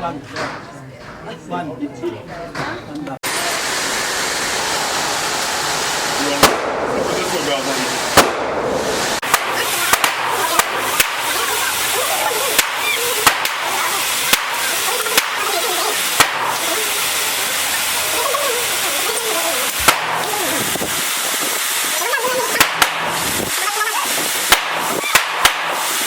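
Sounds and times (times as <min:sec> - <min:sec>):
gunshots: 0:05.7 - 0:26.0.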